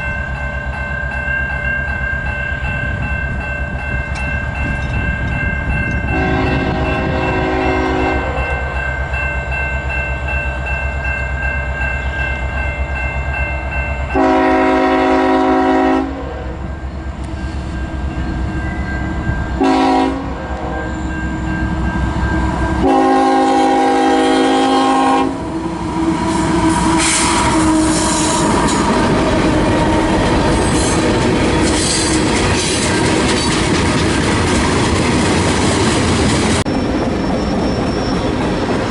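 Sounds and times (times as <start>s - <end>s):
locomotive horn blasts: 6.1s - 8.8s, 14.1s - 16.7s, 19.6s - 21.3s, 22.5s - 25.6s, 26.2s - 28.5s
locomotive rumble: 14.0s - 38.9s
train wheels clattering on rails: 25.8s - 38.9s.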